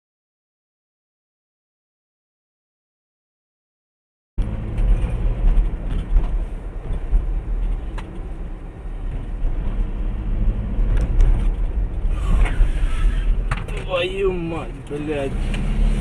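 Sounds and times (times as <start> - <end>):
car engine and road noise: 4.4 - 16.0.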